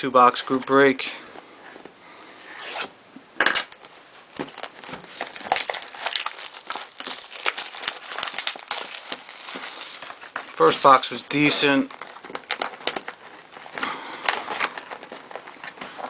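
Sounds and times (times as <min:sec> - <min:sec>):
plastic wrap and cardboard crinkling: 0:03.8 - 0:16.0.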